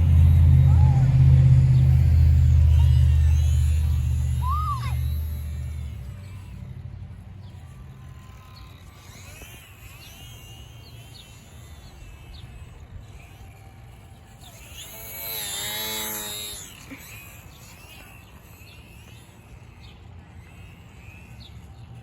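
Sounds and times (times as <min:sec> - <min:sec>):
low outdoor rumble: 0:00.0 - 0:10.1
birds chirping: 0:00.0 - 0:22.0
model plane motor whining: 0:00.0 - 0:22.0.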